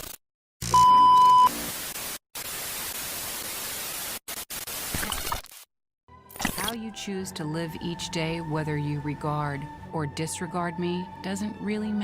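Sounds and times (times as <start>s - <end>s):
loud steady beep: 0.7s - 1.5s.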